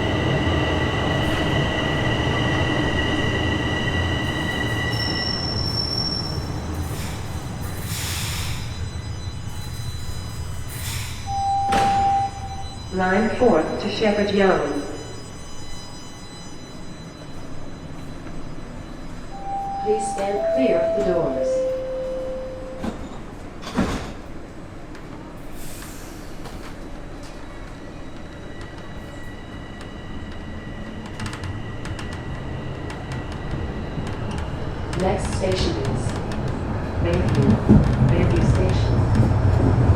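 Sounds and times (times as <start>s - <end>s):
subway train rumbling: 0.0s - 39.9s
high wheel squeal: 0.1s - 13.2s.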